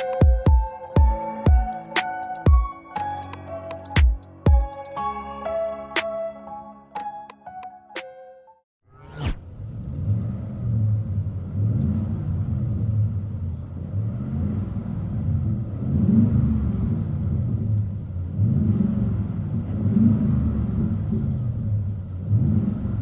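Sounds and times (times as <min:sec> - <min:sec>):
deep rumbling engine: 0:08.9 - 0:23.0.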